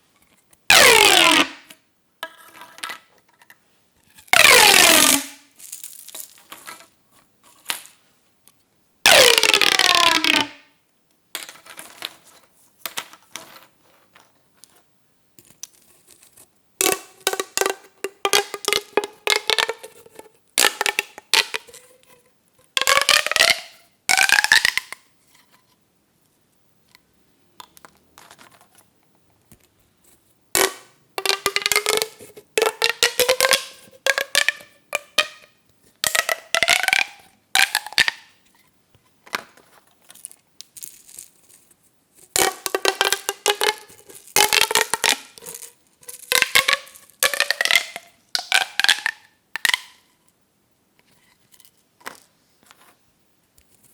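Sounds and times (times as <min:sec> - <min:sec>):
plastic pop tubes clicking: 0:00.7 - 0:02.4, 0:04.3 - 0:05.4, 0:09.1 - 0:10.6, 0:16.8 - 0:20.0, 0:20.6 - 0:21.9, 0:22.8 - 0:25.0, 0:27.6 - 0:28.1, 0:30.6 - 0:38.4, 0:42.3 - 0:50.1.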